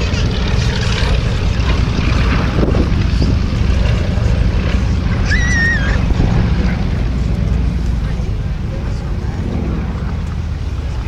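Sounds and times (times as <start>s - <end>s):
steady low rumble: 0.0s - 11.0s
wind buffeting microphone: 0.0s - 11.0s
wavering high whistle: 5.2s - 6.0s.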